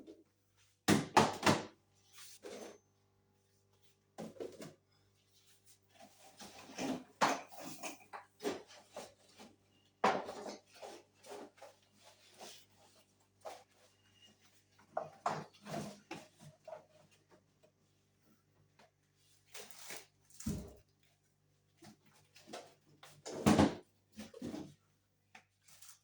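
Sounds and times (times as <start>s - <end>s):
kitchen containers clattering: 6.2s - 9.2s.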